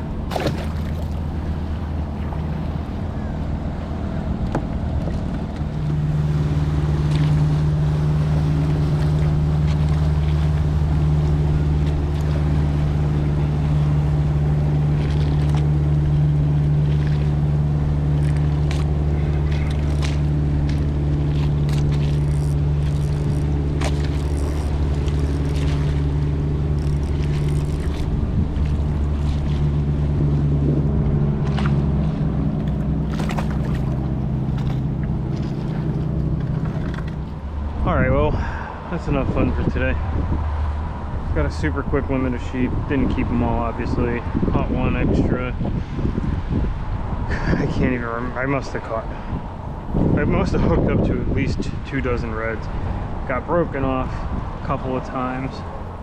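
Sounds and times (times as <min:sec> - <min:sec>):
boat motor humming: 0:00.0 - 0:56.0
water noise: 0:00.0 - 0:56.0
wind: 0:00.0 - 0:56.0.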